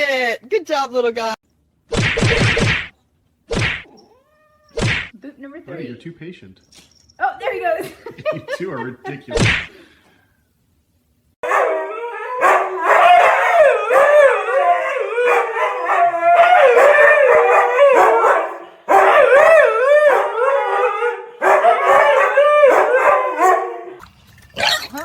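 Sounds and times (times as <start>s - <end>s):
dog howling: 11.4s - 24.0s.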